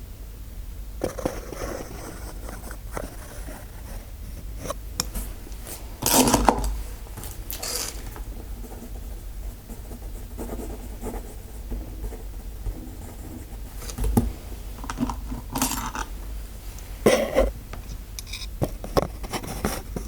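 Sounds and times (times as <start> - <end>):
scratching and rustling near microphone: 1.0 - 9.0.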